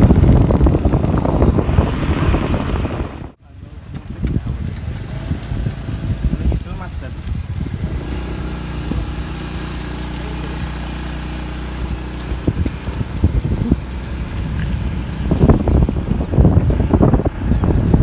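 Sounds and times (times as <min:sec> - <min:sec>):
engine running steadily: 0:00.0 - 0:18.0
wind buffeting microphone: 0:00.0 - 0:18.0.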